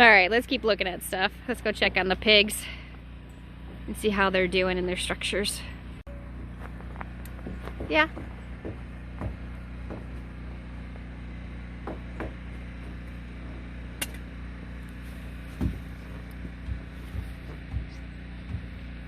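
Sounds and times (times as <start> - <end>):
generator humming: 0.0 - 19.0
dull thumps: 6.8 - 10.4, 15.4 - 19.0.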